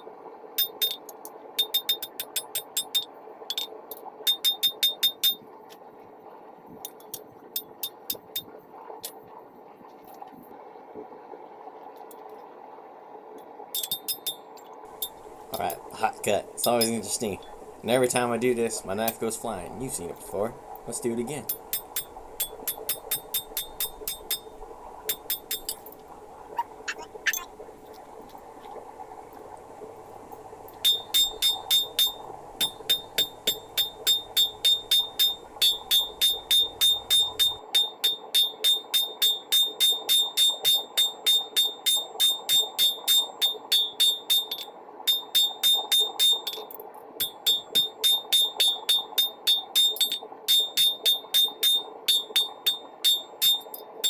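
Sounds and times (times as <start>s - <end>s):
hammer striking metal on anvil: 30.8s - 46.6s.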